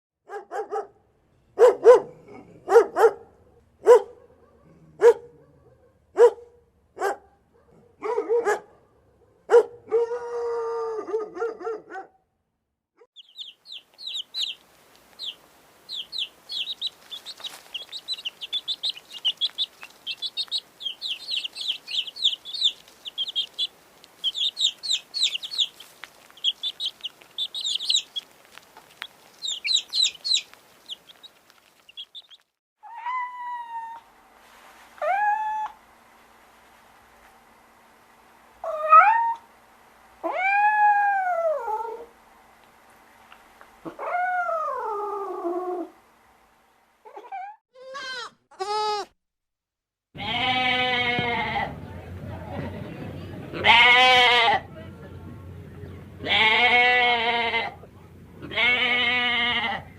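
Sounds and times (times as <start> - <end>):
animal barks: 0.2 - 1.0, 1.6 - 12.2
drawn-out animal call: 13.2 - 32.4, 55.9 - 59.9
birds chirping: 13.2 - 32.5, 54.6 - 59.9.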